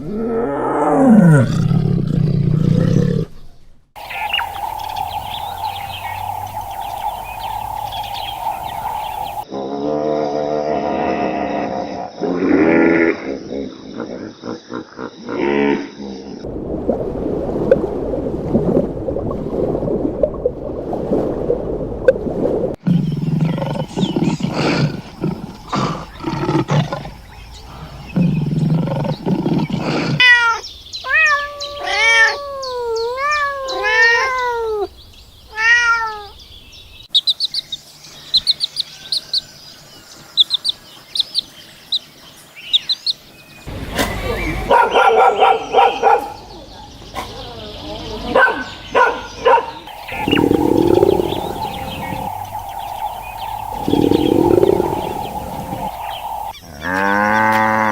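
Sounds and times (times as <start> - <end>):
animal growling: 0.0 - 16.0, 22.8 - 30.3, 49.9 - 57.9
loud animal call: 4.0 - 9.5, 49.9 - 57.9
rapid high chirps: 4.0 - 9.5, 49.9 - 56.6.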